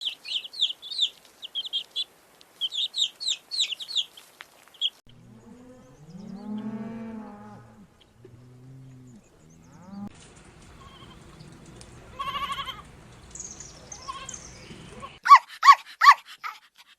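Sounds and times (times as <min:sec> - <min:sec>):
small bird chirping: 0:00.0 - 0:06.7, 0:10.7 - 0:15.2
cow mooing: 0:05.1 - 0:10.1.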